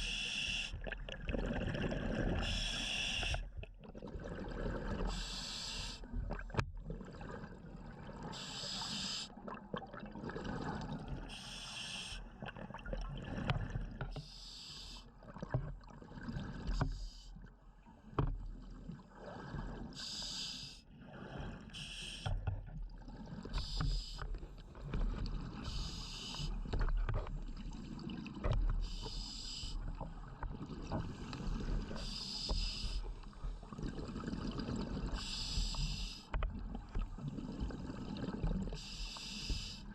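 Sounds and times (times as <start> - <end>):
diver breathing through regulator: 0.0 - 0.8, 1.9 - 3.5, 5.0 - 6.2, 8.3 - 9.4, 11.3 - 12.4, 14.2 - 15.1, 19.9 - 22.6, 23.4 - 24.5, 25.6 - 26.8, 28.8 - 30.1, 31.2 - 33.6, 35.0 - 36.4, 38.7 - 39.9
underwater bubbling: 0.0 - 39.9.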